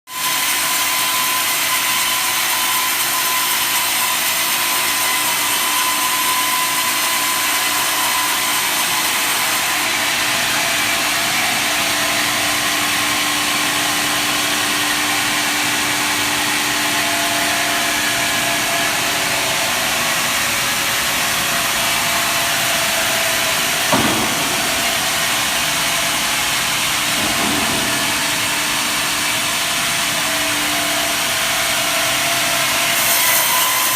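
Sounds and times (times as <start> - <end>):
brief knock: 23.9 - 25.3.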